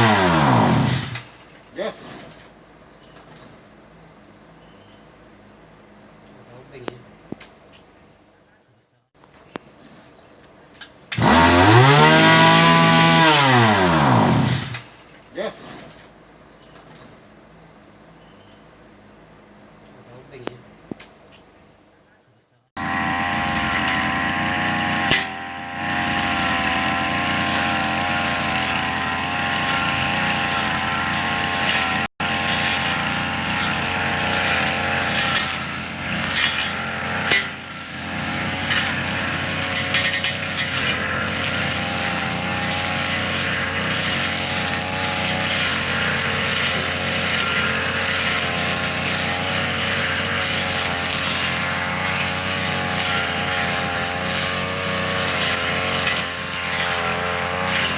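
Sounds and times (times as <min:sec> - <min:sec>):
brush cutter engine running: 0:00.0 - 0:01.5, 0:11.1 - 0:15.0, 0:22.8 - 0:57.9.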